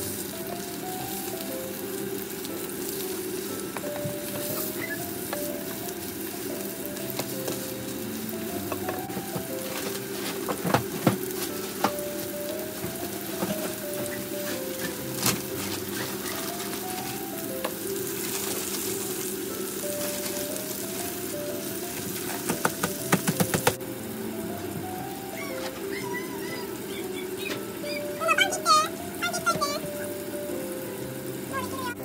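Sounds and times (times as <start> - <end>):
patties sizzling in a frying pan: 0.0 - 32.0.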